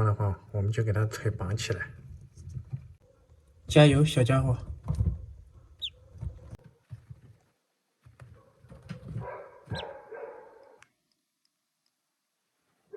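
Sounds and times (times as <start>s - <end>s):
duckling peeping: 5.7s - 6.6s.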